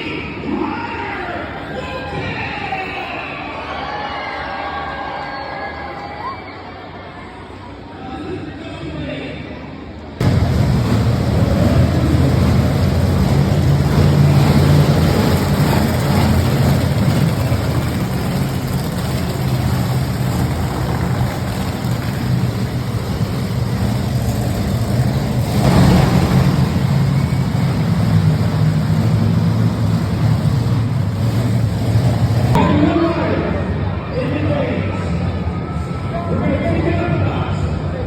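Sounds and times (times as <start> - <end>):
monster truck engine running: 10.2 - 32.6.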